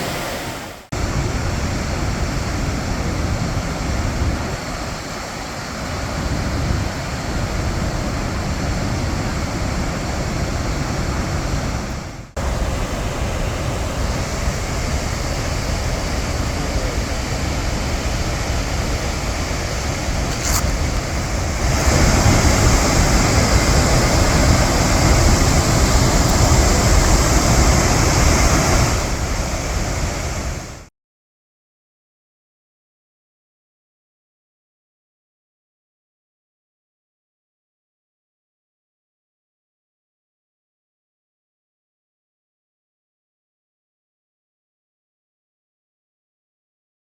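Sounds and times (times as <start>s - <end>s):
waterfall rushing: 0.0s - 30.9s.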